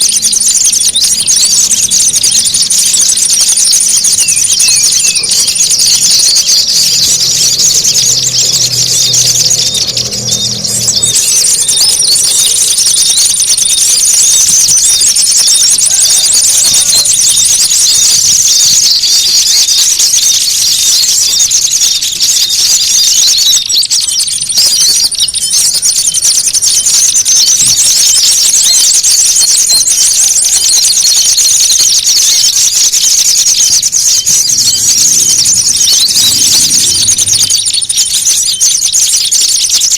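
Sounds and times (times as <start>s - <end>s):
songbirds chattering: 0.0s - 39.9s
faint low hum: 6.9s - 11.9s.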